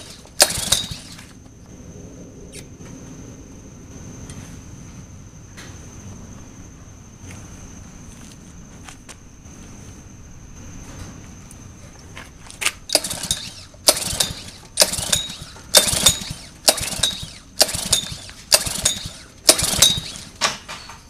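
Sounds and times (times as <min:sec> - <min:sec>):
engine turning over: 0:00.0 - 0:01.5, 0:12.9 - 0:21.0
recoil starter pulls: 0:00.0 - 0:01.5, 0:12.9 - 0:21.0.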